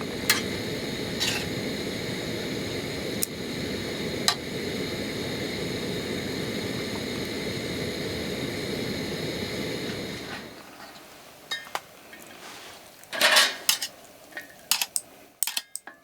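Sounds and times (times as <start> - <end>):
food frying in a pan: 0.0 - 11.6.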